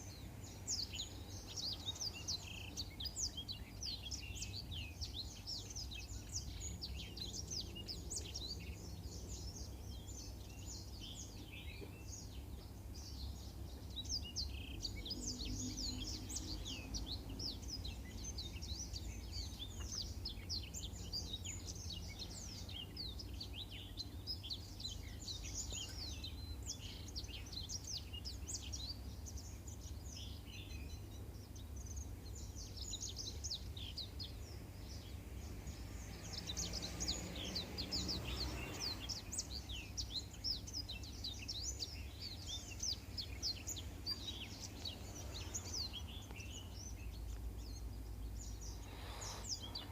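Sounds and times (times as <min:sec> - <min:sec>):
bird chirping and trilling: 0:32.4 - 0:49.9.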